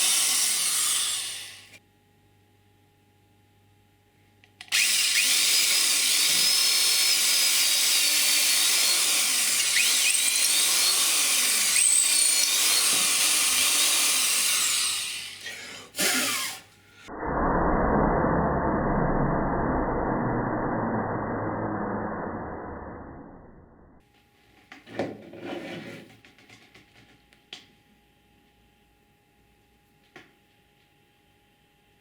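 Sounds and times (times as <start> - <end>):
electric drill motor running: 0.0 - 1.8, 4.7 - 16.6.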